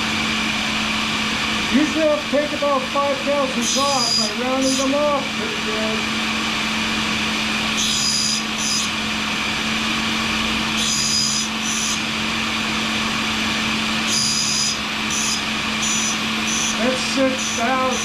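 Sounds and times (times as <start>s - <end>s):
grinder motor hum: 0.0s - 18.0s
shop vacuum running: 0.0s - 18.0s
carbide rasping against grinding wheel: 3.5s - 6.1s, 7.2s - 18.0s.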